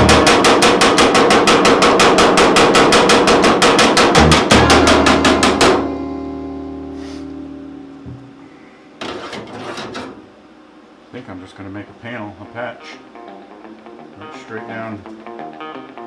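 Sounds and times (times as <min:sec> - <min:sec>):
held chord: 0:00.0 - 0:00.8, 0:04.0 - 0:08.9
music with percussive beat and bass: 0:00.0 - 0:08.4.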